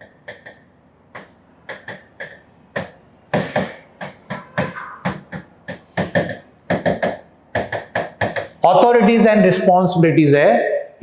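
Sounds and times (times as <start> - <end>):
chalk tapping on board: 0.0 - 8.6.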